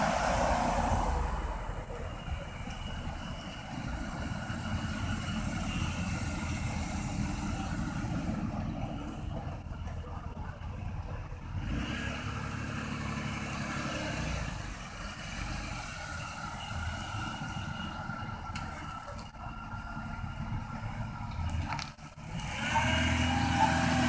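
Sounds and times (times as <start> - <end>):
car engine driving past: 0.0 - 4.4.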